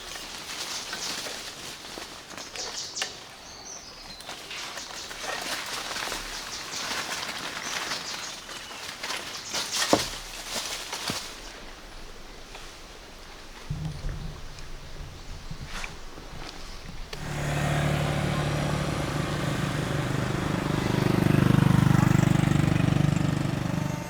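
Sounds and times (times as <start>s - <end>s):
rustling and handling noises: 4.2s - 11.7s
small motor running: 17.2s - 24.0s.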